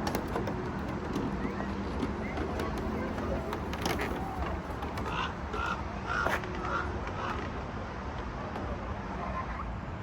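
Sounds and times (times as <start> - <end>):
raven cawing: 5.0 - 7.4.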